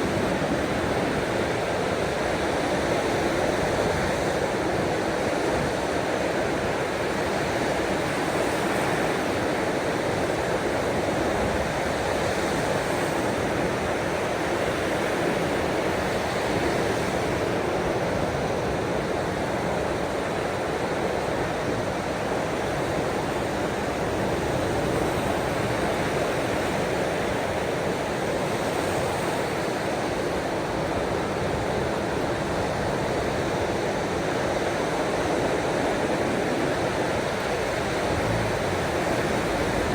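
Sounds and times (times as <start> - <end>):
ocean waves: 35.9 - 39.9
rain: 36.6 - 39.9.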